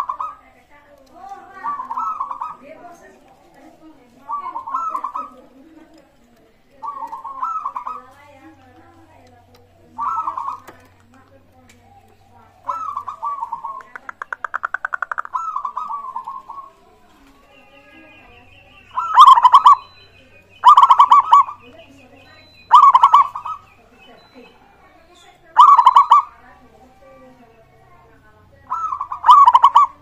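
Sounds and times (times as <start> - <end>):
loud pulsed dove coos: 0.0 - 0.5, 1.5 - 6.0, 6.8 - 8.2, 9.8 - 10.9, 11.8 - 16.9, 18.9 - 20.0, 20.6 - 21.7, 22.4 - 24.8, 25.5 - 27.1, 28.6 - 30.0
dove cooing with rattling trill: 0.0 - 17.4, 18.8 - 20.0, 20.6 - 21.7, 22.4 - 27.4, 28.6 - 30.0.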